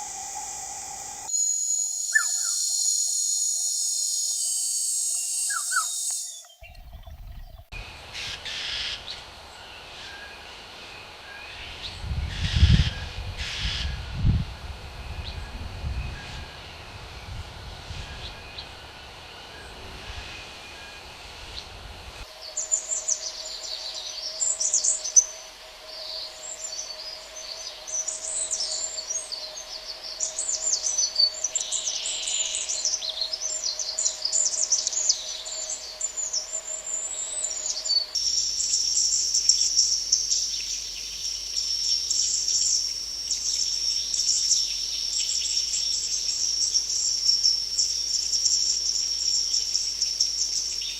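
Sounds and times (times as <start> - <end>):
high insect drone: 0.0 - 6.8, 16.5 - 50.9
birds chirping: 0.0 - 7.7.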